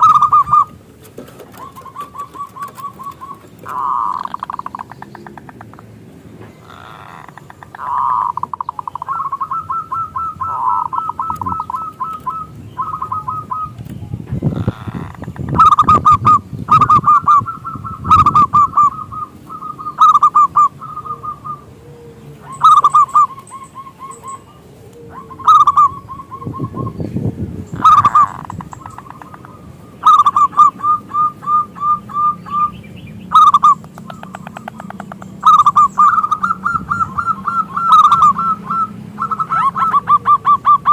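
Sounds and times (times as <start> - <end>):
dove cooing: 0.0 - 5.9, 6.5 - 40.9.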